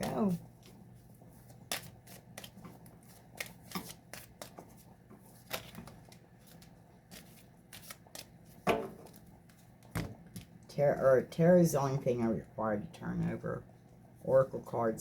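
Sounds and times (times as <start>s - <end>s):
cards being shuffled: 0.0s - 10.6s
faint steady hum: 0.0s - 15.0s.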